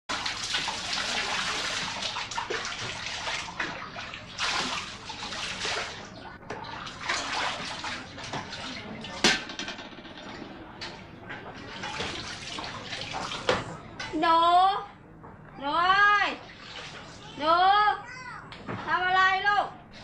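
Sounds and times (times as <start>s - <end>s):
water running and splashing: 0.1s - 9.4s, 11.4s - 13.7s.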